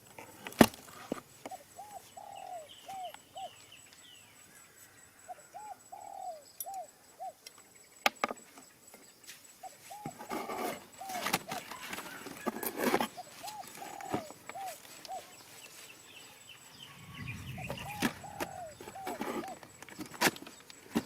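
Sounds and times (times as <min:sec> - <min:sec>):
birds calling: 0:01.0 - 0:21.0.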